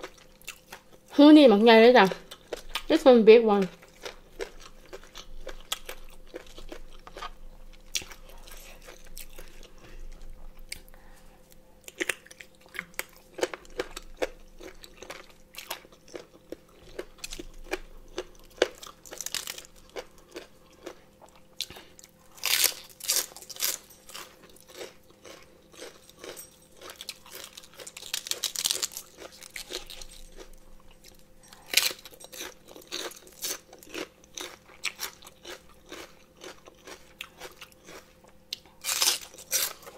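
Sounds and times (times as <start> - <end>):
wet crunchy chewing: 11.8 - 39.9.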